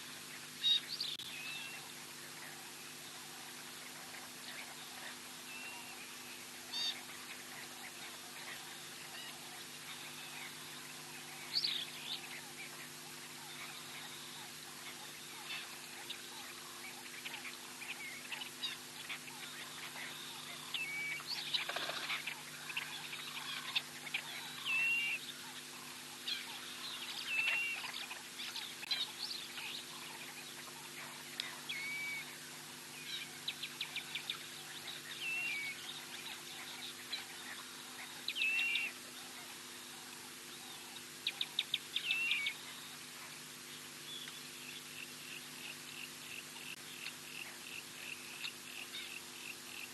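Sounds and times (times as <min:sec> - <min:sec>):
birds calling with whistles and trills: 0:00.0 - 0:49.9
low electrical hum: 0:00.0 - 0:49.9.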